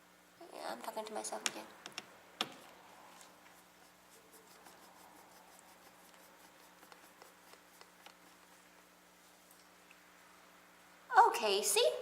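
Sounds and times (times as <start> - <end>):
screw turning with scratchy rubbing: 3.5 - 8.6.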